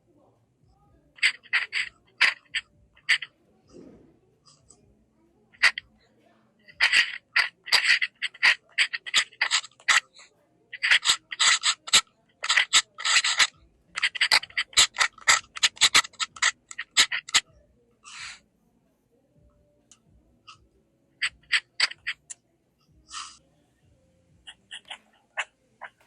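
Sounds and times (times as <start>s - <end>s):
pen nib scratching paper: 1.2s - 4.7s, 5.5s - 5.8s, 6.7s - 17.4s, 21.2s - 22.3s.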